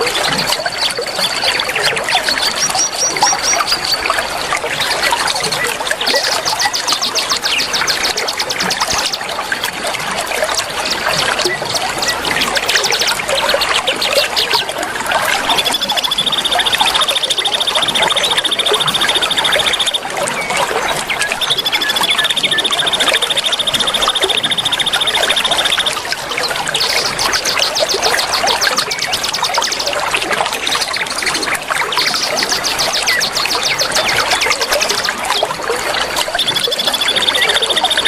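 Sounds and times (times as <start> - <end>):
rapid high bird chirping: 0.0 - 9.2, 10.6 - 14.8, 15.4 - 35.6, 36.2 - 38.0
trickling water: 0.0 - 38.0
high bird trill: 15.5 - 30.0, 36.2 - 38.0.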